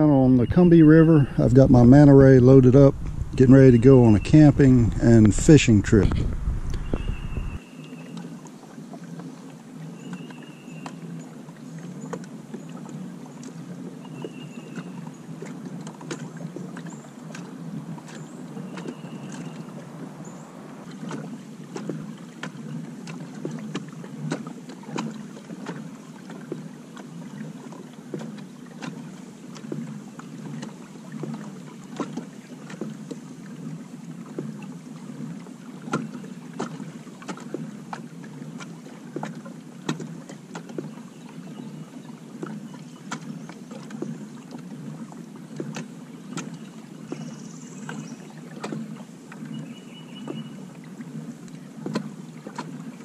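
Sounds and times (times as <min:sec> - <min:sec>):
pedal drive churning: 0:00.0 - 0:07.6
bird calling: 0:00.0 - 0:08.1, 0:18.0 - 0:21.1, 0:49.5 - 0:50.6
water washing along kayak hull: 0:00.0 - 0:53.0.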